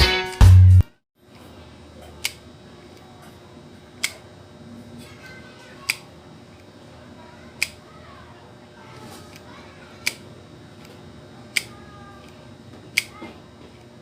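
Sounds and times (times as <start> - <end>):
music track: 0.0 - 1.0.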